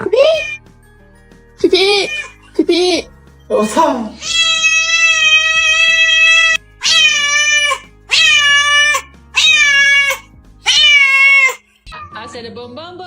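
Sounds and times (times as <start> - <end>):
cat meowing loudly: 0.0 - 0.6, 1.8 - 2.4, 4.2 - 11.6
quiet background music: 0.0 - 13.0.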